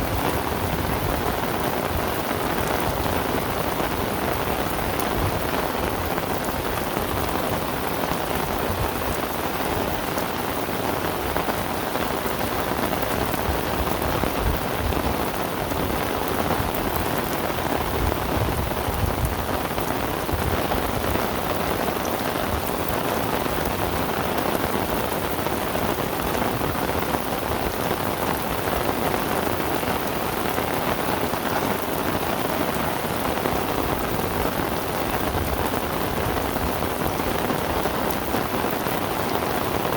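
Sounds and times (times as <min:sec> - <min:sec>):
heavy rain downpour: 0:00.0 - 0:39.9.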